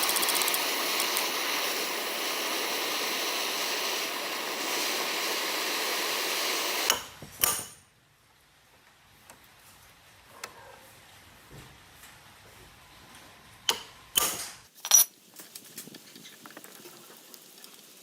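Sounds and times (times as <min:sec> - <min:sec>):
workshop tool hissing: 0:00.0 - 0:07.8.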